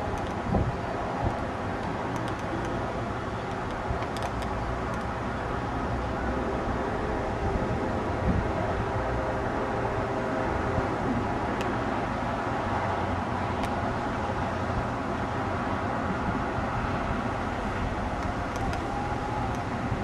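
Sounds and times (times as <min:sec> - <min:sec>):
passenger train rumbling: 0:00.0 - 0:20.0
faint clicks: 0:18.2 - 0:19.7.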